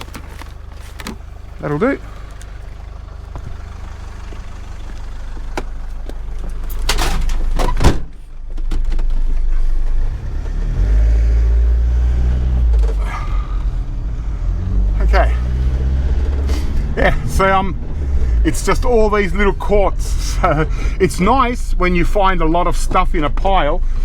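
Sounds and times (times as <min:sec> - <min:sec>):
car engine driving off: 0:00.0 - 0:24.0
car door shutting: 0:02.1 - 0:03.8, 0:05.4 - 0:09.4.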